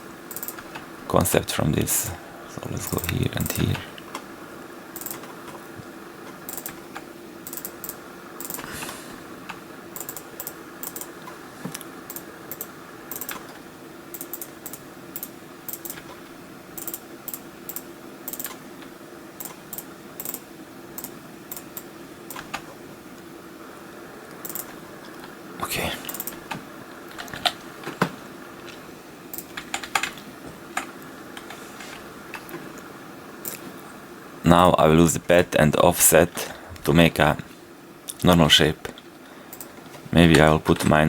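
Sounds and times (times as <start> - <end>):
low electrical hum: 0.0 - 41.0
computer mouse and keyboard clicking: 0.3 - 0.9, 5.0 - 5.6, 6.2 - 16.2, 16.8 - 18.6, 19.4 - 20.4, 21.0 - 22.7, 24.3 - 25.4, 26.0 - 32.6, 33.4 - 33.8, 38.9 - 41.0.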